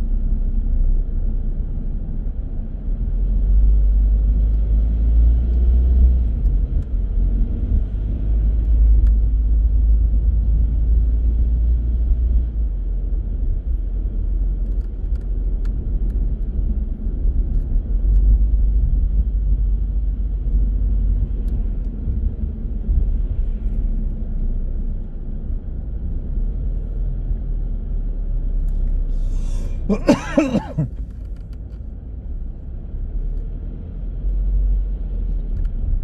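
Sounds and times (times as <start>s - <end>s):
car engine and tyre rumble: 0.0s - 36.0s.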